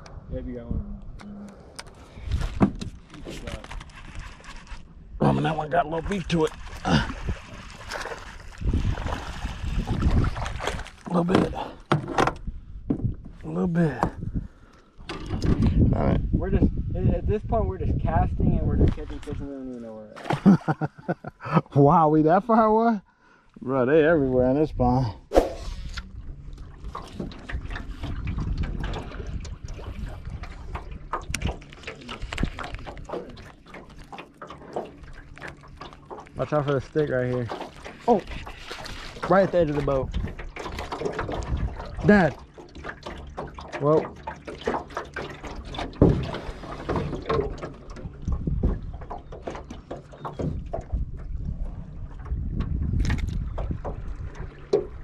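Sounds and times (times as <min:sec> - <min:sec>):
wind rumble on microphone: 0:00.0 - 0:19.6, 0:24.3 - 0:33.5, 0:38.1 - 0:42.4, 0:45.6 - 0:55.0
water lapping against boat hull: 0:01.0 - 0:21.5, 0:22.6 - 0:55.0
small ticks and splashes: 0:06.1 - 0:11.2, 0:26.5 - 0:55.0.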